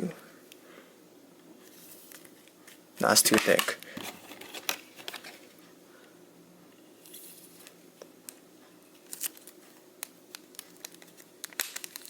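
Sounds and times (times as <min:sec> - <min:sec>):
plastic card holders rustling: 0:01.6 - 0:05.6.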